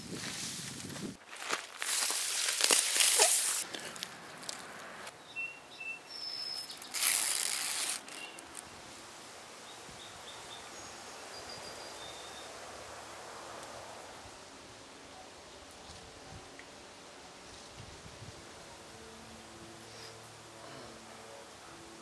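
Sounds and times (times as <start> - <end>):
scraping rustling noise: 0.0 - 5.1, 6.6 - 8.6
outdoor hiss: 0.0 - 22.0
bird chirps: 5.2 - 7.1.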